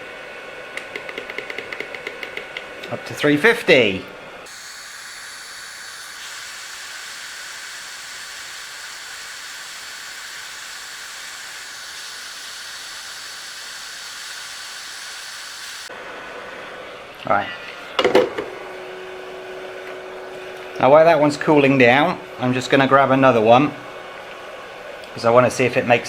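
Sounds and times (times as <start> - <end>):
hot air gun blowing: 4.5 - 15.9
faint high whine: 4.5 - 16.0.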